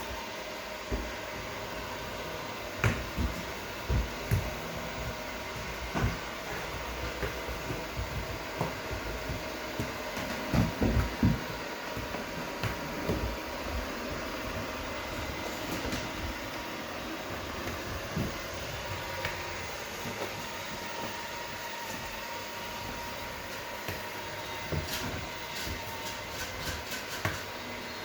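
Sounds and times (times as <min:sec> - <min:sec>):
robot vacuum cleaner whirring: 0:00.0 - 0:28.0
soft thumps and knocks: 0:02.7 - 0:21.2.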